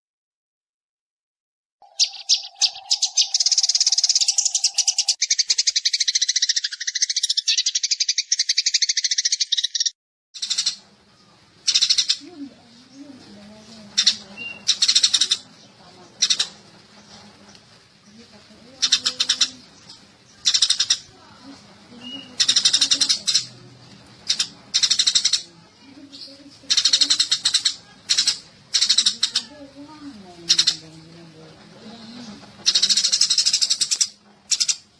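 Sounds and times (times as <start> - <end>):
sparrow chattering: 1.8 - 17.2, 17.8 - 31.1, 31.7 - 34.9
sparrow chirps: 1.8 - 31.1, 31.8 - 34.9.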